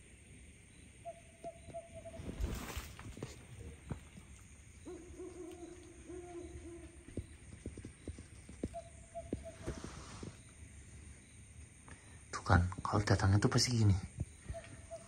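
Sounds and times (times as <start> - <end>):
night bird hooting: 0.8 - 4.2, 4.8 - 10.5, 14.2 - 15.0.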